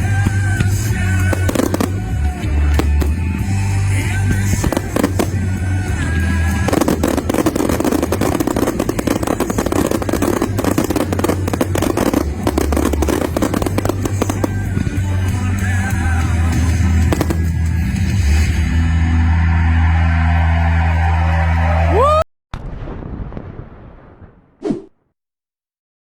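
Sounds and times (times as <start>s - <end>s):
fireworks crackling: 0.0s - 18.5s
music with steady bass: 0.0s - 21.9s.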